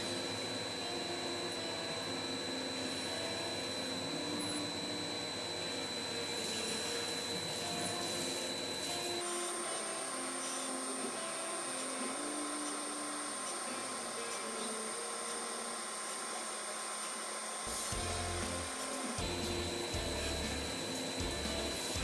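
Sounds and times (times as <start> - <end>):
milling machine drilling: 0.0 - 22.0.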